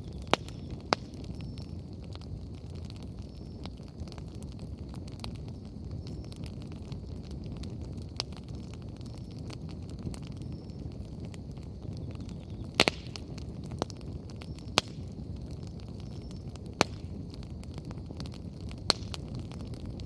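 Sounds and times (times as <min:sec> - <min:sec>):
fire crackling pops: 0:00.0 - 0:20.0
wood fire rumbling: 0:00.0 - 0:20.0.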